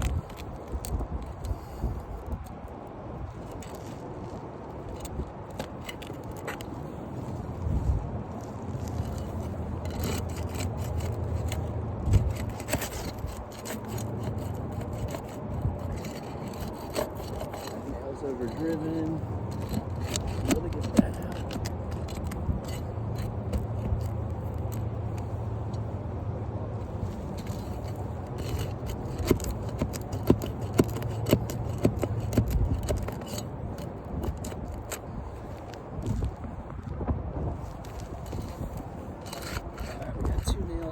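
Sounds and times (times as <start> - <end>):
roof shingle scraping and clicking: 0.0 - 26.1, 26.8 - 40.9.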